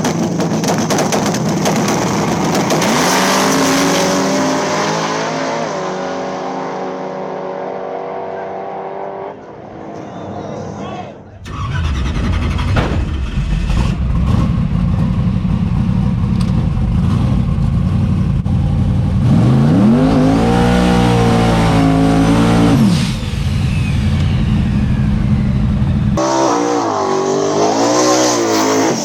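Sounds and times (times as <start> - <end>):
race car engine revving: 0.1 - 10.0, 11.4 - 29.0
another engine: 11.4 - 29.0.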